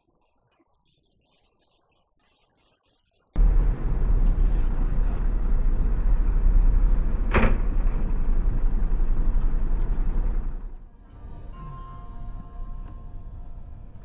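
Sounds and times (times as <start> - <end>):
car engine and road noise: 3.4 - 14.0.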